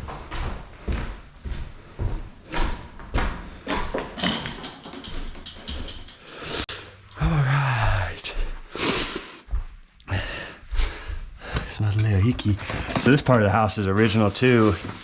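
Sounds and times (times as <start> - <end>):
small pieces rattling: 4.2 - 6.4
broom scraping debris: 12.5 - 15.0.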